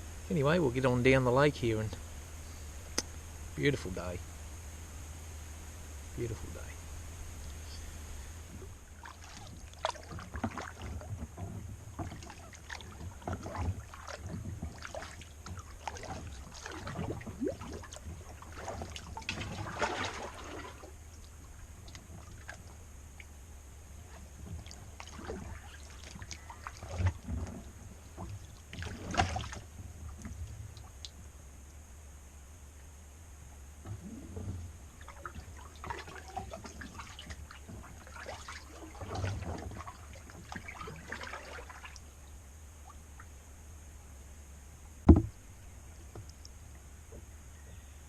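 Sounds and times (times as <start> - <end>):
kayak paddle splashing: 6.3 - 31.4, 33.9 - 43.4
water dripping from paddle: 8.9 - 23.4, 24.1 - 31.8, 35.0 - 43.3, 46.0 - 46.8.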